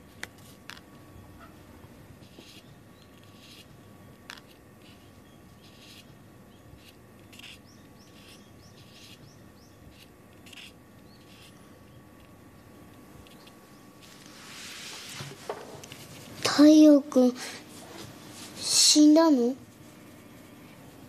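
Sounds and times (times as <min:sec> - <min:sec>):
faint steady hum: 0:00.0 - 0:21.0
small birds chirping: 0:01.1 - 0:14.0.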